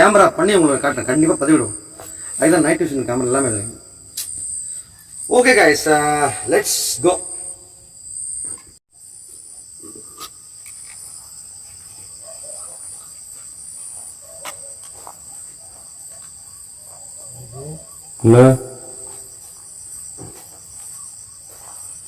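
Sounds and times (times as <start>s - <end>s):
crickets chirping: 0.0s - 22.0s
person's voice: 17.6s - 19.1s.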